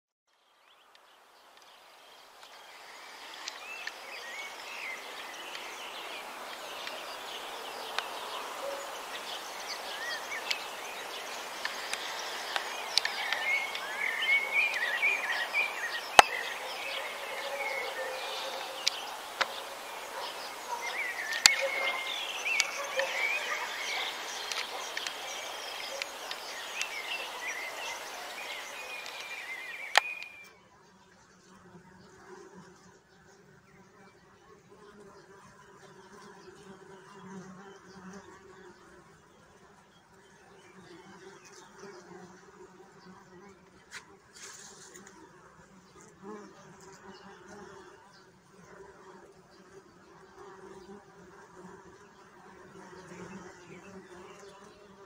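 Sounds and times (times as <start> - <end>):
steady outdoor hiss: 0.3 - 55.0
birds chirping and singing: 2.4 - 30.5
sharp clicks: 28.9 - 30.4.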